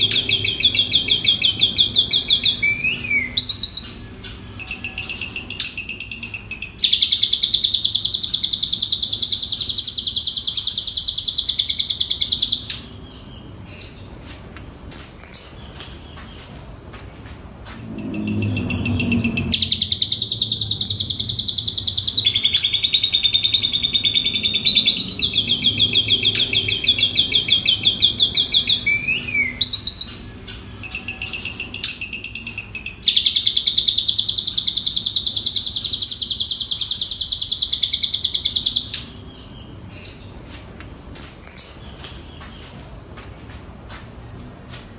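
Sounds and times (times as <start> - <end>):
bird song high trilling: 0.0 - 14.1, 17.8 - 40.3
brief low rumble: 17.6 - 19.8.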